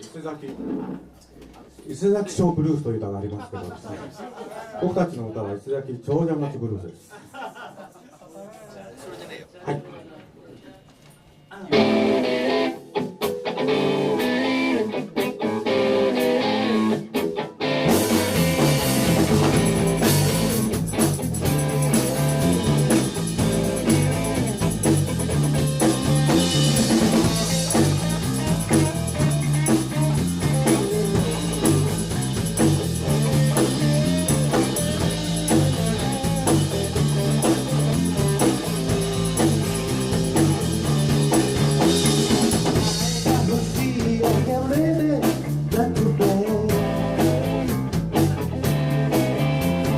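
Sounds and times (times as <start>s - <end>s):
electric guitar phrases: 11.6s - 49.9s
rock band playing live: 11.7s - 49.9s.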